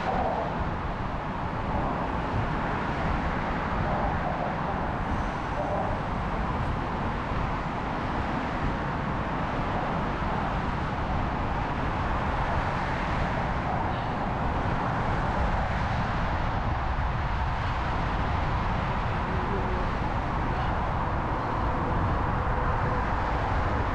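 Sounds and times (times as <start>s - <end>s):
city traffic noise: 0.0s - 23.9s.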